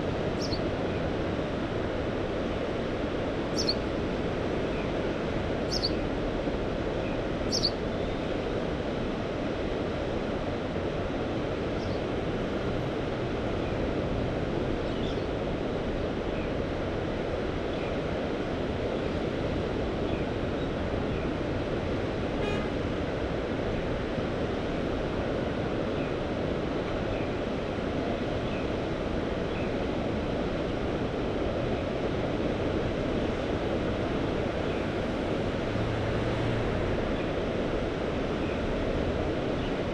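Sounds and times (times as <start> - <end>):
sea waves washing: 21.4 - 39.9.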